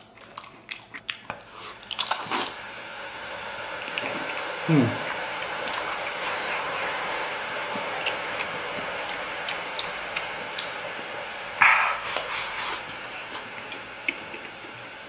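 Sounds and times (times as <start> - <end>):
background hiss: 1.4 - 15.0.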